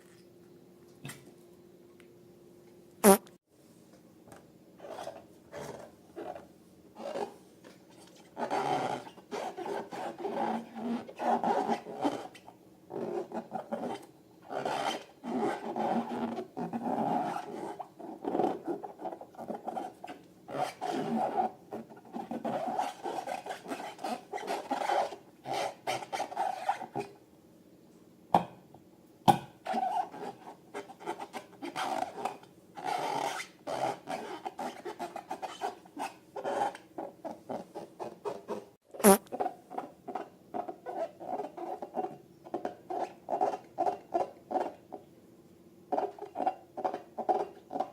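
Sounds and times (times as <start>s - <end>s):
balloons and slime rubbed and scraped: 3.0s - 3.2s, 8.2s - 26.9s, 29.7s - 39.4s.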